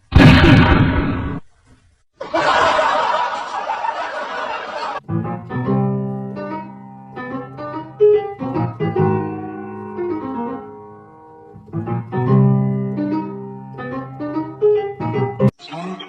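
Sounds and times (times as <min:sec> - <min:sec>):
piano music: 0:05.0 - 0:15.5.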